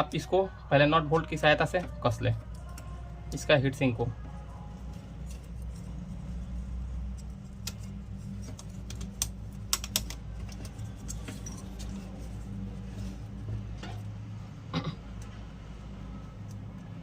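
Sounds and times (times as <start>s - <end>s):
steady low hum: 0.0s - 17.0s
small metal parts clicking: 7.1s - 12.3s.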